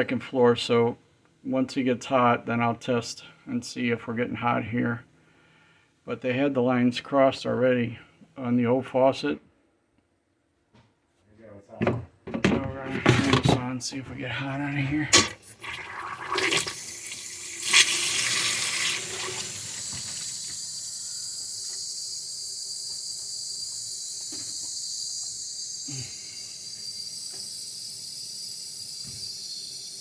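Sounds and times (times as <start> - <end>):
water rushing through pipe: 15.1 - 21.5.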